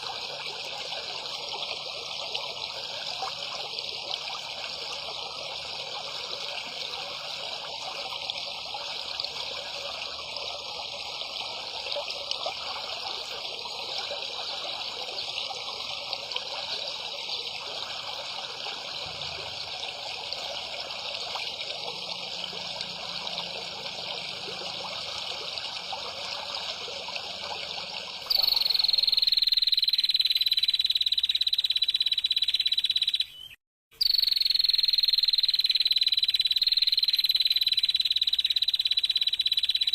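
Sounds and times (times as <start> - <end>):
hiss like running water: 0.0 - 29.2
high-pitched insect or frog call: 28.2 - 33.3, 34.0 - 39.9.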